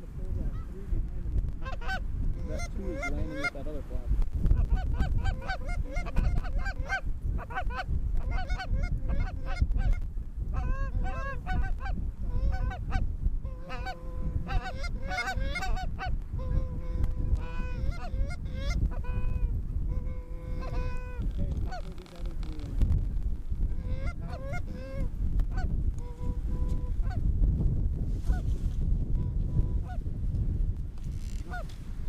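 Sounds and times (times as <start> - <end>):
geese honking: 1.6 - 3.7, 4.6 - 10.0, 10.6 - 22.0, 23.8 - 27.2, 31.5 - 31.7
steady low rumble: 3.7 - 32.0.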